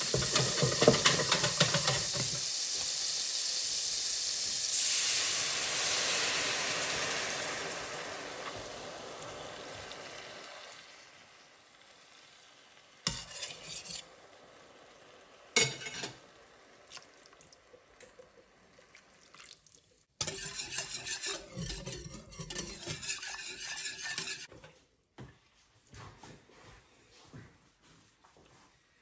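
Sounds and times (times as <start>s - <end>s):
utensil stirring food in a pan: 0.0s - 9.7s, 13.0s - 15.0s, 15.6s - 24.6s.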